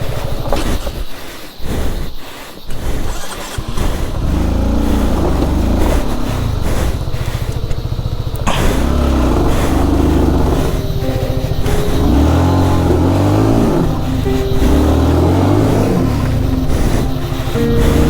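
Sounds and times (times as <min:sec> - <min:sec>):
motorcycle engine revving: 0:03.1 - 0:18.0.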